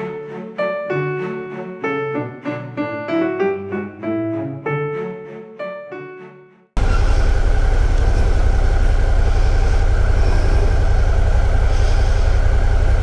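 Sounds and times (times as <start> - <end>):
motorcycle engine rumbling: 6.8 - 13.0.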